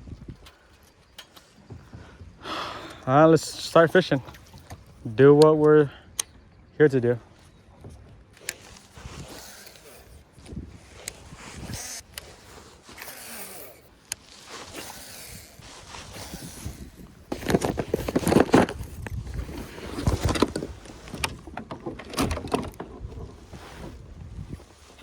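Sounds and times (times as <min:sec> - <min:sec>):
choppy water: 0:03.3 - 0:05.2
knocks and scrapes on kayak: 0:07.7 - 0:25.0.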